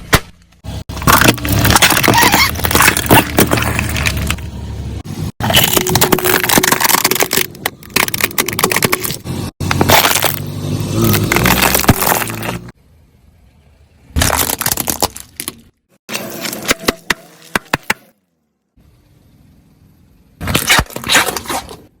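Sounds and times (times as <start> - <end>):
objects crunching under car tyre: 0.0 - 12.8, 14.1 - 18.0, 20.4 - 22.0.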